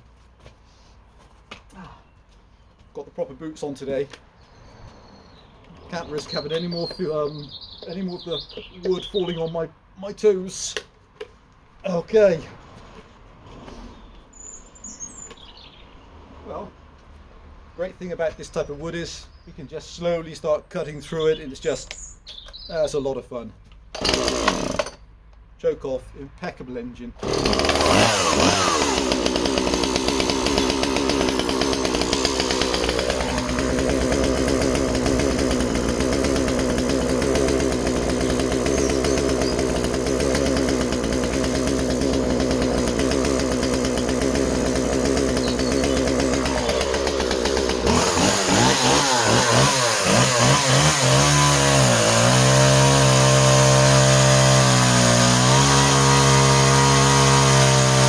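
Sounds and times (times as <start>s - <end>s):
chainsaw engine cutting wood: 5.7s - 8.0s, 23.9s - 25.0s, 27.2s - 58.0s.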